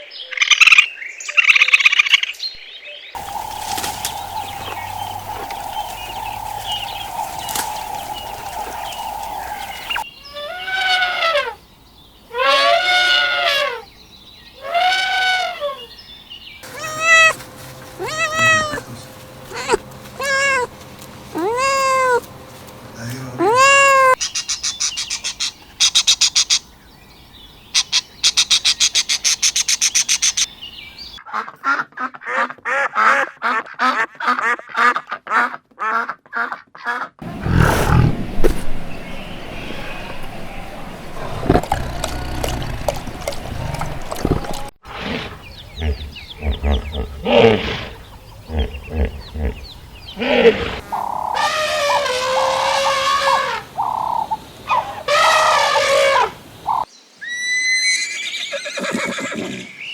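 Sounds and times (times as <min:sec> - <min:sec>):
fast rhythmic animal calls: 0:03.2 - 0:10.0, 0:16.6 - 0:24.2, 0:37.2 - 0:44.7
long arching animal calls: 0:03.2 - 0:11.6, 0:12.2 - 0:13.9, 0:14.5 - 0:16.0, 0:16.6 - 0:26.6, 0:37.2 - 0:59.9
rising and falling animal calls: 0:03.2 - 0:11.6, 0:16.6 - 0:24.2, 0:37.2 - 0:44.7, 0:45.3 - 0:59.8
rapid high chattering: 0:16.6 - 0:24.2.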